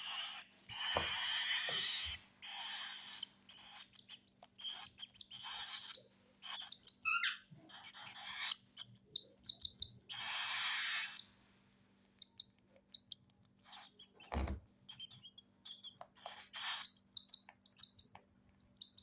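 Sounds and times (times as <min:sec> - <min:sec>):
baby bird chirps: 0:00.0 - 0:11.3, 0:12.2 - 0:19.0
baby birds begging calls: 0:04.6 - 0:11.2.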